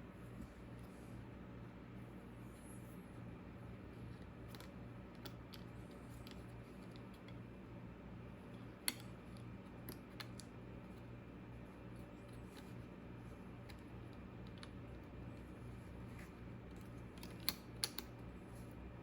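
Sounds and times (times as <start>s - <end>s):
steady low hum: 0.0s - 19.0s
light clicks and taps: 4.1s - 7.4s, 16.2s - 18.3s.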